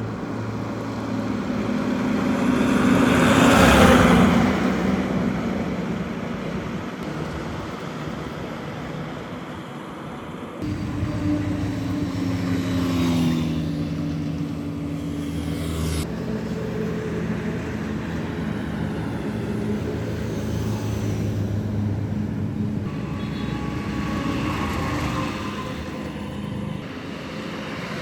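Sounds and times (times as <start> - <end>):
traffic noise: 0.0 - 28.0
vehicle engines running: 10.6 - 28.0.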